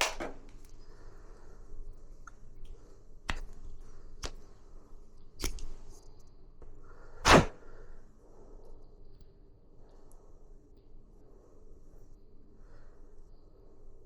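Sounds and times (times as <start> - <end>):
loud sharp whack: 7.2 - 7.6.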